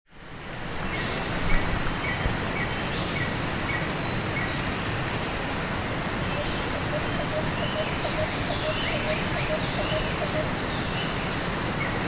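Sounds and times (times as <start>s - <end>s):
insect chirps: 0.2s - 12.0s
insects pulsing: 0.2s - 12.0s.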